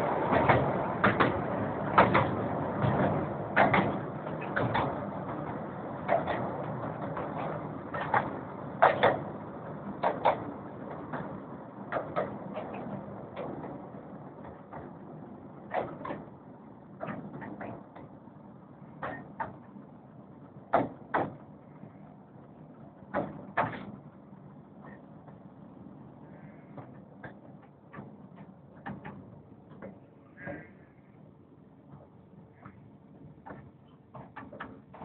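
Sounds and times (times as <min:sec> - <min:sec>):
wheels clicking over rail joints: 0:00.0 - 0:21.9, 0:31.9 - 0:35.0
miniature train rumbling: 0:00.0 - 0:30.8.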